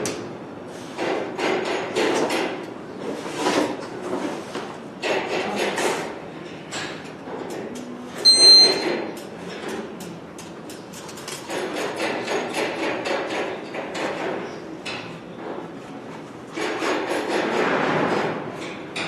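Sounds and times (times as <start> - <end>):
short high-pitched beep: 8.2 - 8.9.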